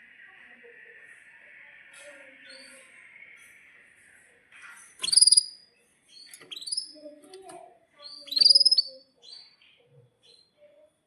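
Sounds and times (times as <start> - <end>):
canary singing: 5.0 - 7.4, 8.0 - 9.5.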